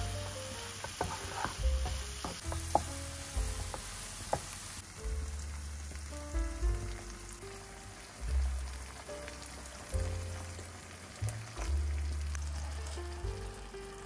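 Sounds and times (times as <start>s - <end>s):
vegetables sizzling in a frying pan: 0.0s - 14.0s
wooden spatula stirring and scraping: 0.2s - 4.5s
spatula knocking against pan: 0.8s - 2.9s.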